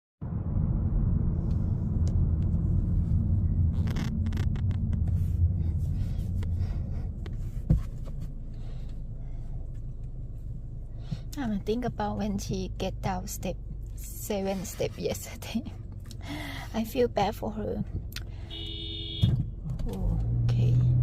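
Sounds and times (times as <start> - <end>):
car cabin road rumble: 0.2 - 21.0.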